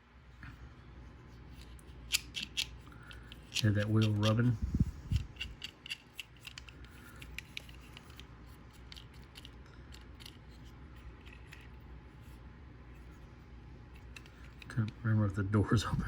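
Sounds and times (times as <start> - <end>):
toy car wheel scratchy clicks: 2.1 - 10.4.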